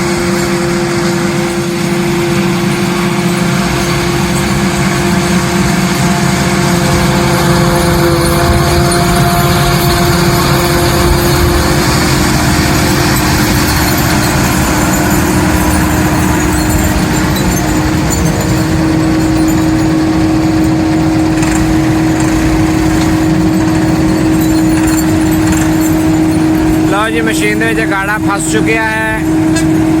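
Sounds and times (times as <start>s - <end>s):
harvester engine droning: 0.0s - 30.0s.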